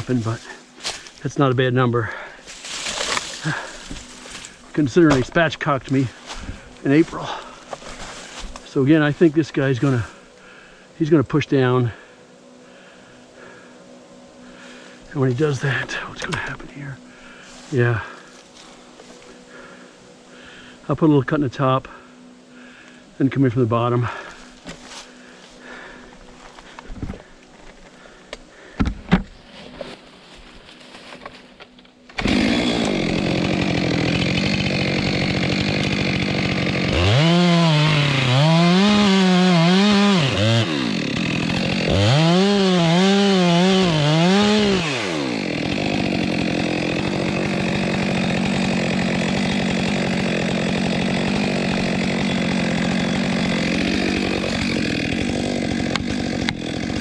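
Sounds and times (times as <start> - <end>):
chainsaw cutting log: 0.0 - 1.2, 2.4 - 10.2, 14.7 - 16.6, 24.1 - 27.2, 30.7 - 57.0.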